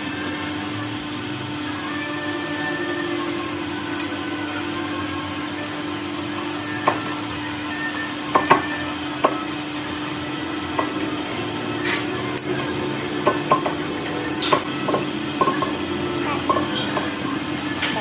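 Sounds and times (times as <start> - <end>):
machine hum: 0.0 - 18.0
tools knocking on metal: 8.3 - 9.4, 12.4 - 15.8, 16.4 - 18.0.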